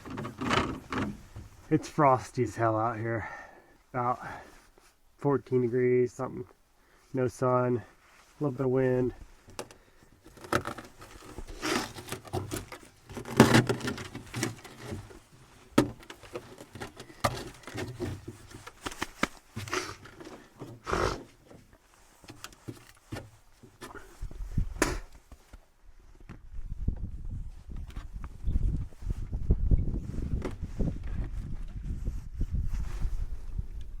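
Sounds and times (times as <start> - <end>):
knocks and scrapes from handling gear: 0.0 - 1.7, 9.4 - 25.6.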